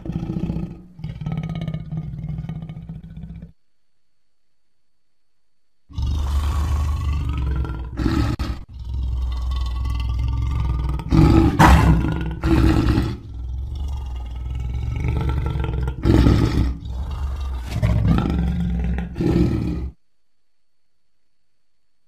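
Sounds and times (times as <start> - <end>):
lion roaring: 0.0 - 3.6, 5.9 - 20.0.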